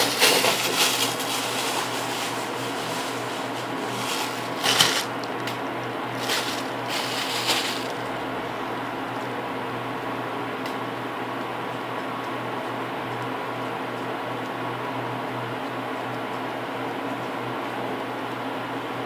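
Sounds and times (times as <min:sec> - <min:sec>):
hands rustling clay: 0:00.0 - 0:05.2, 0:06.2 - 0:08.2
electric fan hum: 0:00.0 - 0:19.0.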